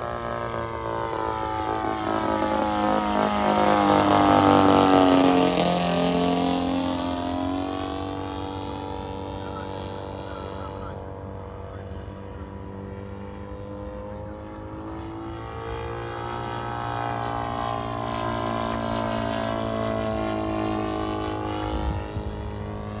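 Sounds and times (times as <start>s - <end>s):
radio-controlled model engines: 8.1s - 12.8s.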